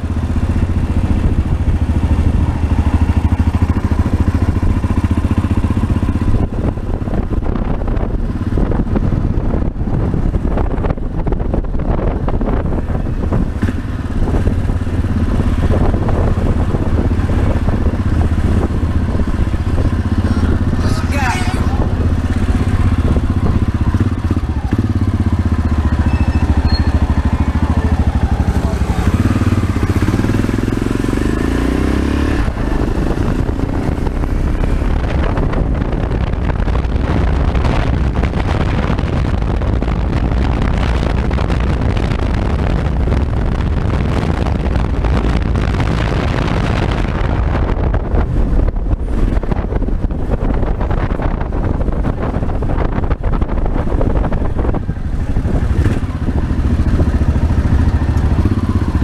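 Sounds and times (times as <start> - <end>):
motorcycle engine running: 0.0 - 59.0
town traffic: 0.0 - 59.0.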